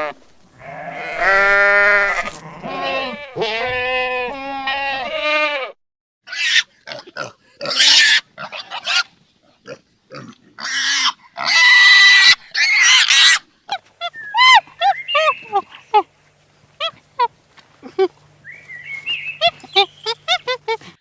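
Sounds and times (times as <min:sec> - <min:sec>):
pig squealing and grunting: 0:00.0 - 0:05.6, 0:06.3 - 0:16.0
wavering bleats: 0:00.0 - 0:09.1.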